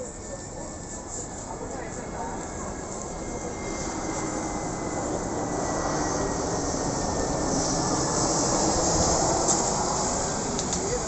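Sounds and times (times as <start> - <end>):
jet airliner engines: 0.0 - 11.0.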